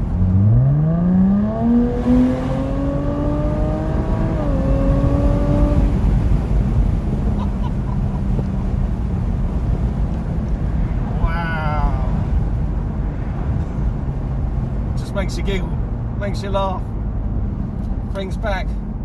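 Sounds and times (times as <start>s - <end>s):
car engine accelerating hard: 0.0s - 10.8s
road and wind noise: 0.0s - 19.0s.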